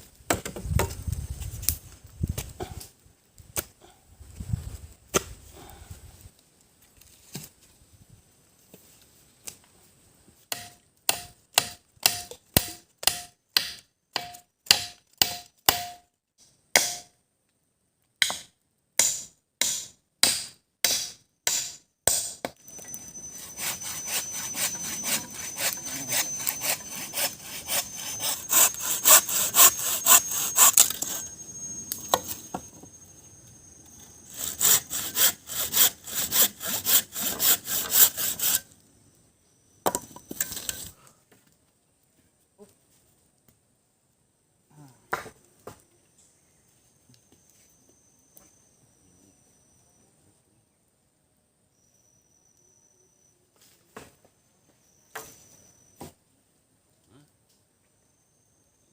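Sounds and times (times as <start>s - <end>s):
wood chopping strikes: 10.5s - 16.0s, 16.8s - 17.1s, 18.2s - 22.6s
saw cutting through wood: 22.8s - 31.5s, 34.3s - 38.6s.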